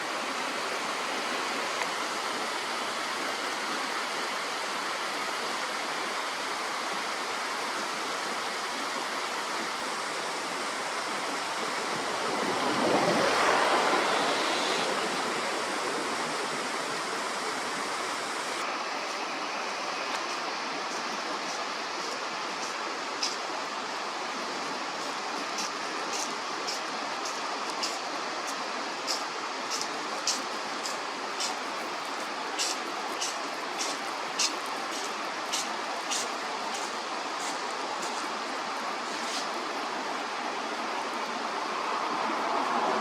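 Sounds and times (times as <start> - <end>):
flowing water rushing: 0.0 - 43.0.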